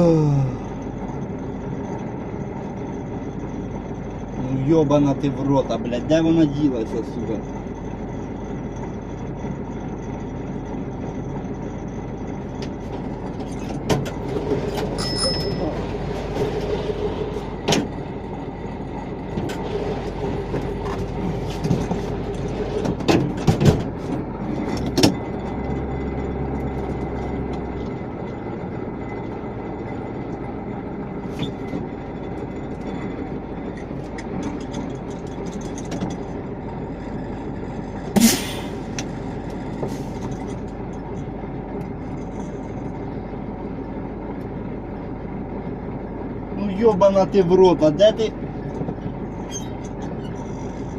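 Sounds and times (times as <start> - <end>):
vehicle running rumble: 0.0 - 50.9
knocks and clatters: 19.3 - 25.8, 33.7 - 36.4.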